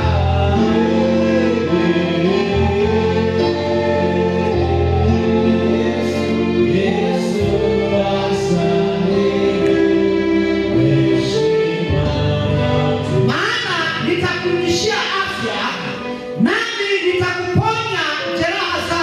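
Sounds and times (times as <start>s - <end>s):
sustained bass accompaniment: 0.0s - 14.6s
gospel choir singing: 0.0s - 16.6s.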